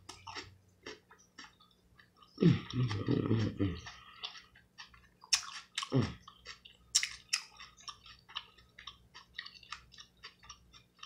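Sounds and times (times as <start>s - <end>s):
cucumber chewing crunches: 0.0s - 11.0s
person humming low mm: 2.4s - 3.9s, 5.9s - 6.2s
mouth smacks: 6.9s - 7.5s.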